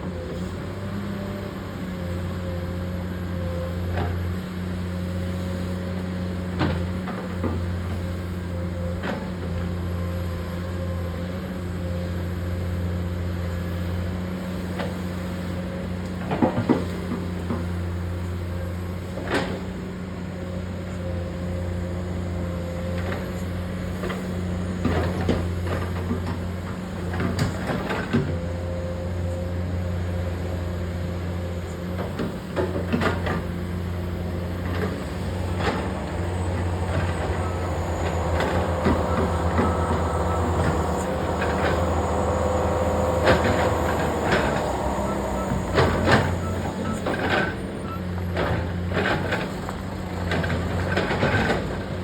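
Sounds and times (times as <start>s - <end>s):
truck load knocking and rattling: 31.8s - 52.0s
truck diesel engine idling: 33.5s - 47.8s.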